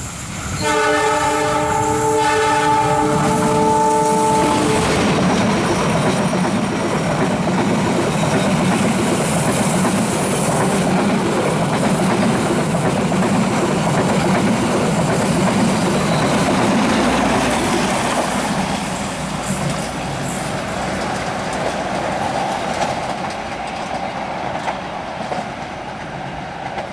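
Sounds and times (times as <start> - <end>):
train wheels rumbling on rails: 0.0 - 26.9
train horn: 0.6 - 5.2.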